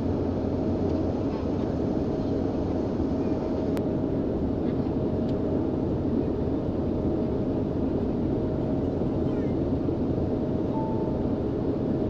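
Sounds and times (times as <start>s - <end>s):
airliner engine and airflow rush: 0.0s - 12.0s
thin steady hum: 10.6s - 11.4s.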